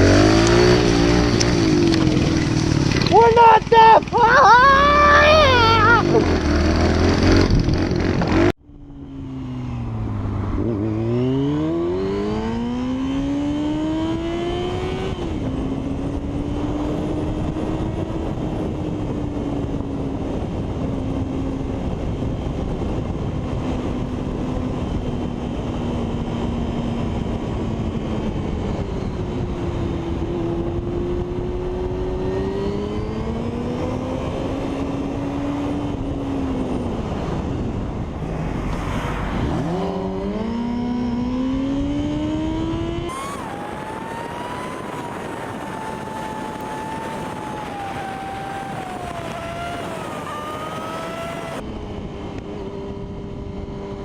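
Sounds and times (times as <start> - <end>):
motorcycle engine revving: 0.0 - 54.0
steady rushing noise: 36.6 - 51.7.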